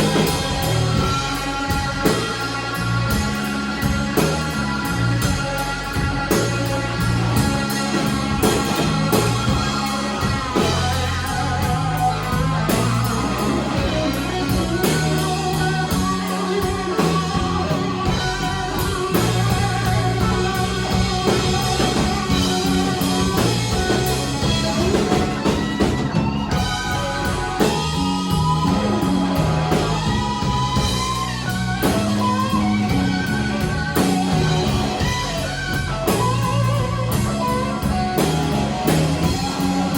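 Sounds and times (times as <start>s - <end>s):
blues band playing: 0.0s - 39.9s
electric guitar lead lines: 0.0s - 39.9s.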